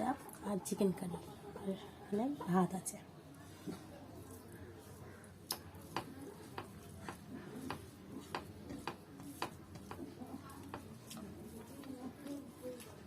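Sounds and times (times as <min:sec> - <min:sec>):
food squishing: 0:03.4 - 0:13.0.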